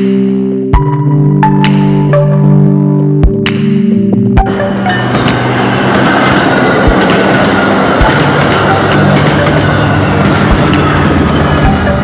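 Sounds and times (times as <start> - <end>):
train rolling rumble: 4.4 - 12.0
wheel clacks over rail joints: 5.0 - 12.0.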